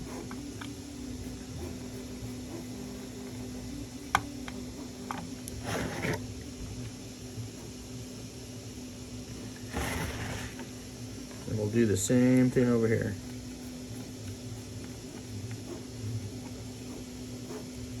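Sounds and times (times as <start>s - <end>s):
steady low hum: 0.0s - 18.0s
short scraping noises: 9.7s - 10.6s.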